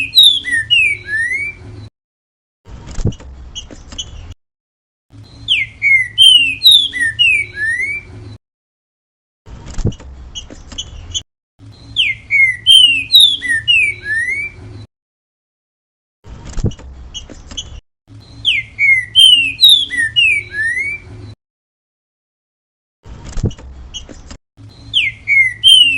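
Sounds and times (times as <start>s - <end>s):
bird singing whistled notes: 0.0s - 1.6s, 5.2s - 8.1s, 11.7s - 14.6s, 18.2s - 21.1s, 23.9s - 25.9s.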